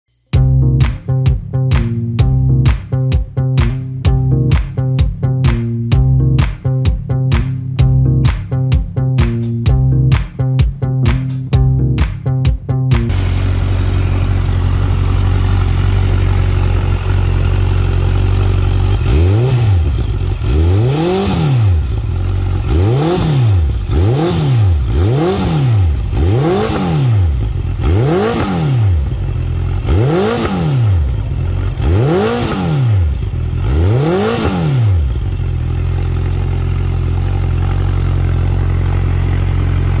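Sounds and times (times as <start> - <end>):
motorcycle exhaust idling and revving: 13.0 - 40.0.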